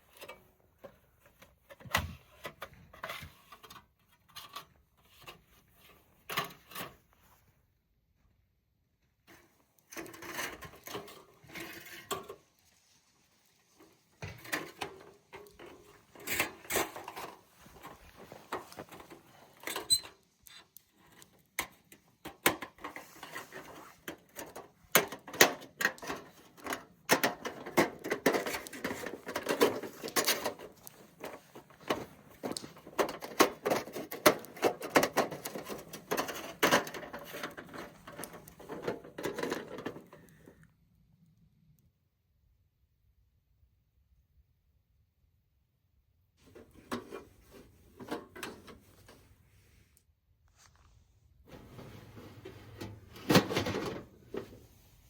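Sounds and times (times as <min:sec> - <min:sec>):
rustling: 0:09.4 - 0:40.4.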